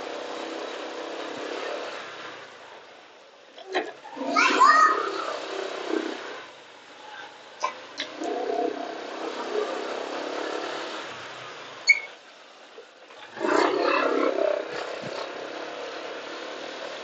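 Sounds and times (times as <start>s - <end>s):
street noise: 0.0s - 17.0s
short high beep: 11.9s - 12.1s.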